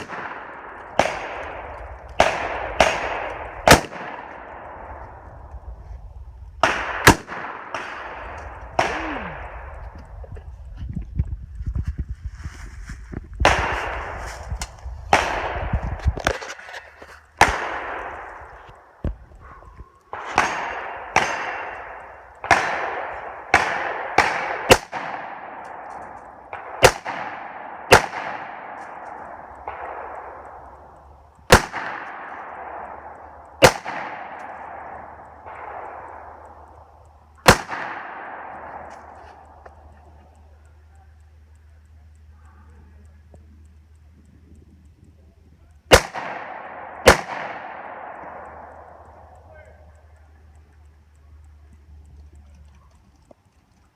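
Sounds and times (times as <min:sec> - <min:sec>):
gunshots hitting steel targets: 0:00.0 - 0:05.6, 0:06.6 - 0:10.0, 0:13.4 - 0:19.0, 0:20.1 - 0:40.2, 0:45.9 - 0:49.8.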